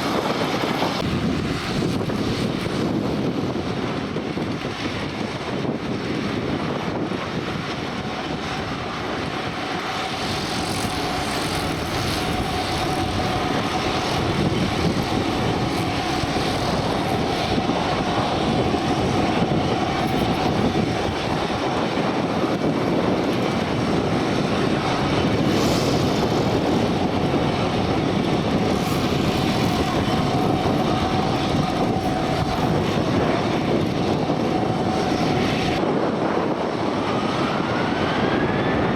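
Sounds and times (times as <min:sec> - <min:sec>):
aircraft engines whining: 0:00.0 - 0:38.9.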